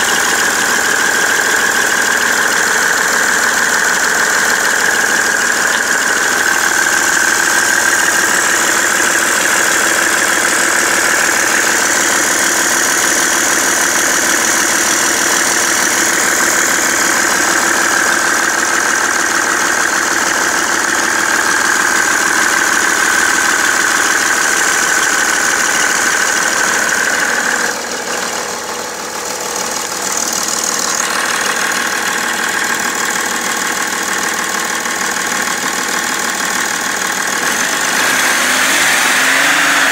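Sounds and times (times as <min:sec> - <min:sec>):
diesel engine running: 0:00.0 - 0:39.9
engine knocking: 0:00.0 - 0:39.9.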